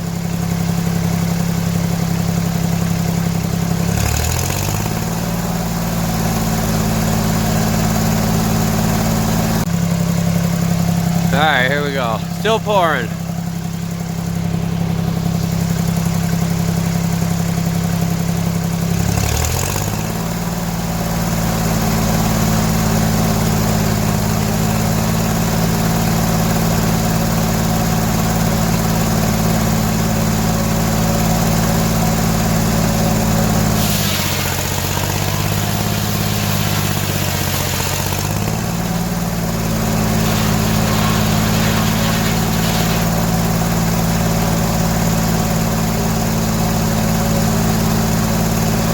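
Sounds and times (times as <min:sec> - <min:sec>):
sawmill engine running: 0:34.5 - 0:48.9.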